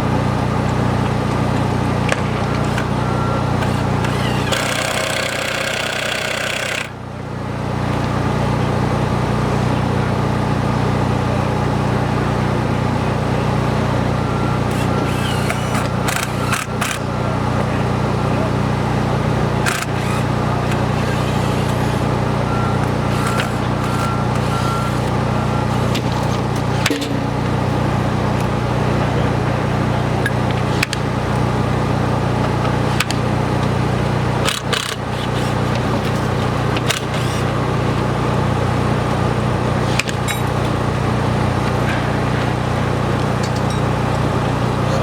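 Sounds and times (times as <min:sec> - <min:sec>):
machinery low drone: 0:07.1 - 0:35.0
work clicks and knocks: 0:19.6 - 0:22.1, 0:22.8 - 0:27.5.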